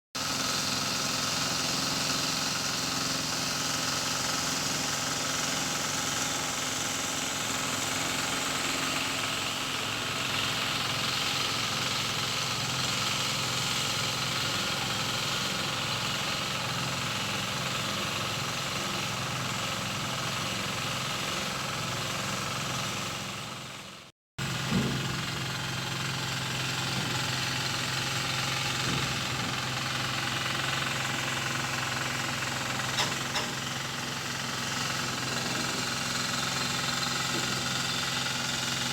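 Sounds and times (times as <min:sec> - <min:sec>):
engine running: 0:00.2 - 0:38.9.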